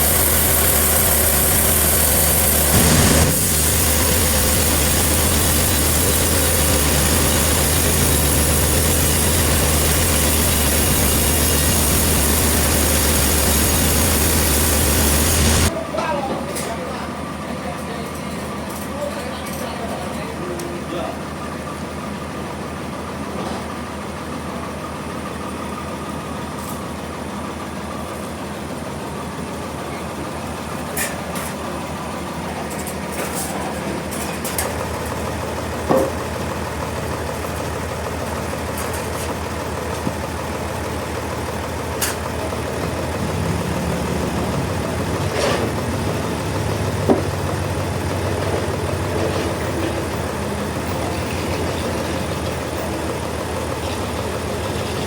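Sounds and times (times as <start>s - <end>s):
engine humming: 0.0s - 15.7s, 30.9s - 55.0s.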